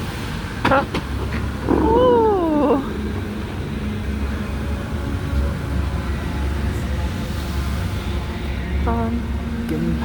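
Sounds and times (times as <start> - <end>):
steady low rumble: 0.0 - 10.0
pitched vocal call: 1.6 - 3.0.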